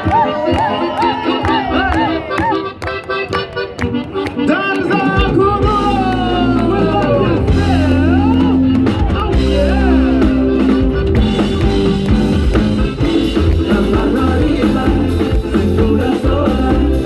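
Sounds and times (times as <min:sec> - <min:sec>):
live band playing dance song: 0:00.0 - 0:17.0
bass line: 0:03.9 - 0:17.0
drum kit: 0:05.0 - 0:17.0.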